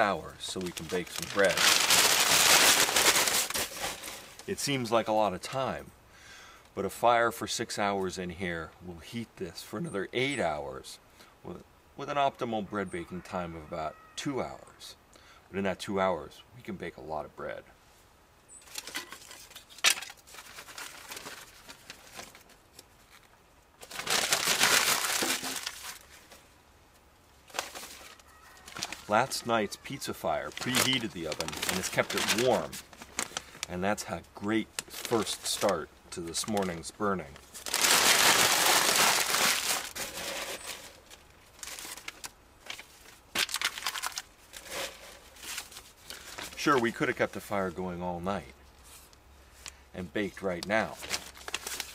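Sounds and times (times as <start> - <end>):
loud crumpling: 0.4 - 4.5, 18.7 - 26.4, 27.5 - 33.7, 34.7 - 35.8, 37.4 - 46.9, 50.9 - 51.9.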